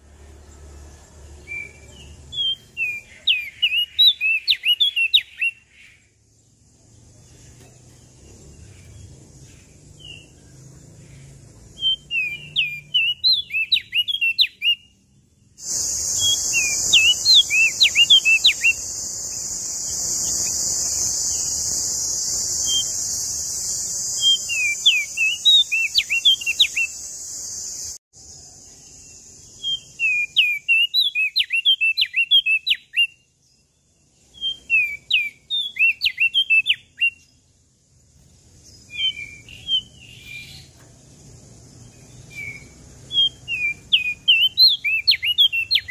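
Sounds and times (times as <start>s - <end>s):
bird singing chirpy phrases: 0.0s - 45.9s
loud high-pitched hiss: 15.6s - 28.0s.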